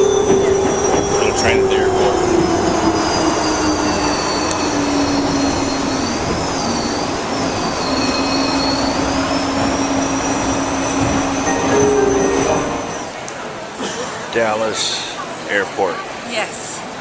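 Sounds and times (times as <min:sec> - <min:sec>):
jet engine roar in cabin: 0:00.0 - 0:06.8.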